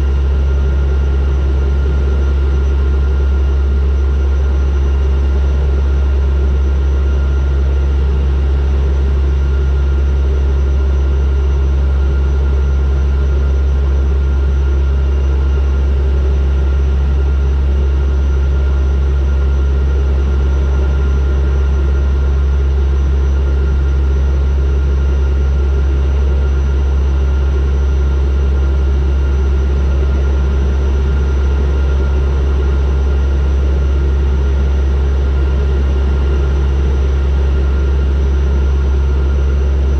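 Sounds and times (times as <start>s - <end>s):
turboprop aircraft engine drone: 0.0s - 39.9s.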